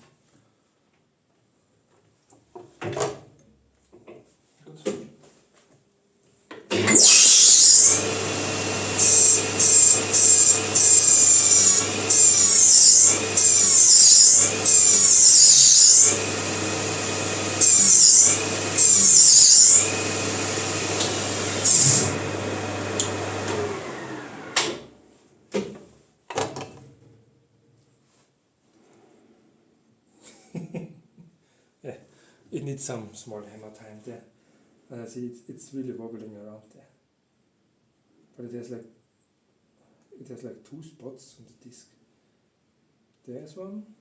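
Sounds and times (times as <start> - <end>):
lathe whine: 6.7 - 24.9.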